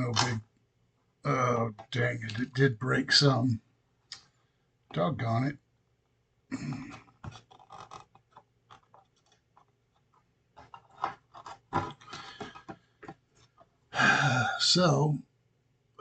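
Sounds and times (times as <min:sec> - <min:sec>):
plastic parts clicking and scraping: 0:06.7 - 0:13.7.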